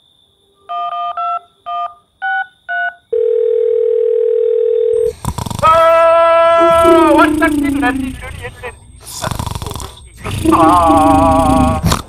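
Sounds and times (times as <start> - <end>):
low telephone line tone: 3.1 - 5.1.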